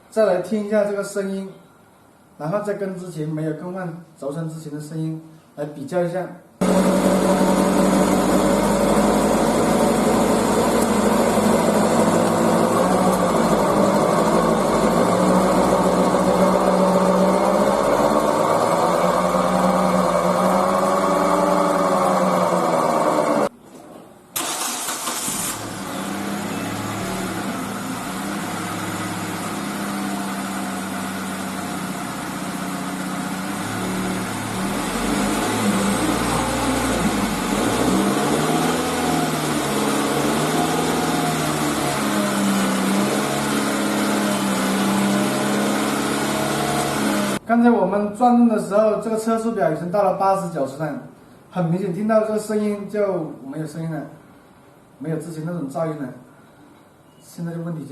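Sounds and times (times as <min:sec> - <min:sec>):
car engine revving: 0:06.6 - 0:23.5, 0:24.4 - 0:47.4.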